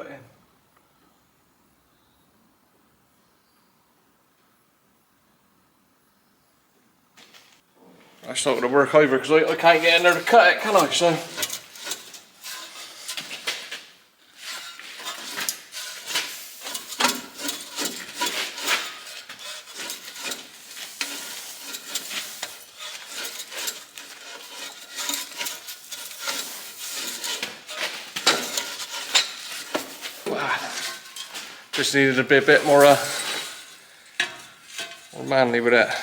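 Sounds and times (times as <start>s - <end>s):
metal scraping and clinking: 8.3s - 36.0s.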